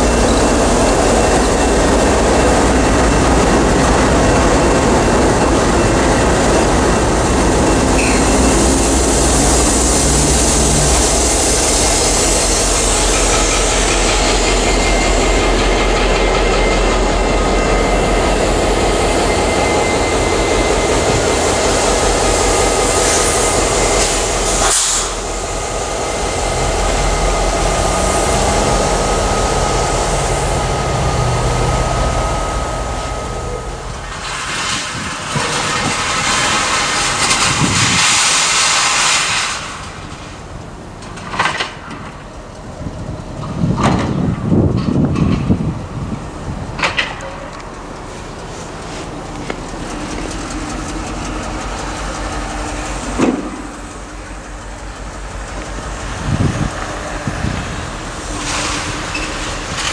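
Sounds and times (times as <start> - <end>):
diesel locomotive approaching: 0.0 - 59.9
freight train rumbling past: 0.0 - 59.9
wheels on rail: 0.0 - 59.9.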